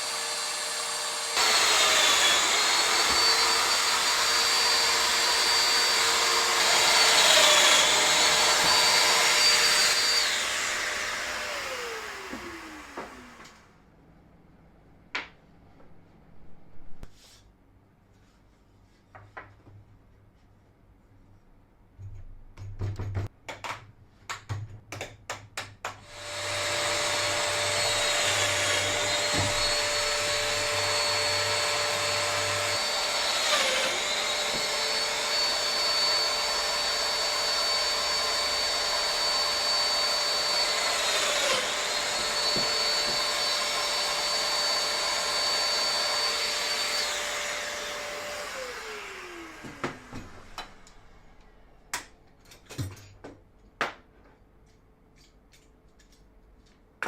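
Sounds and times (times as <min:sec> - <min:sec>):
power tool motor whining: 0:00.0 - 0:13.6, 0:26.1 - 0:50.8.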